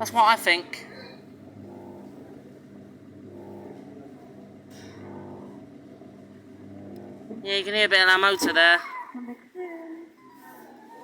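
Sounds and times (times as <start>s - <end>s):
kiddie ride electric motor humming: 0.8s - 8.8s.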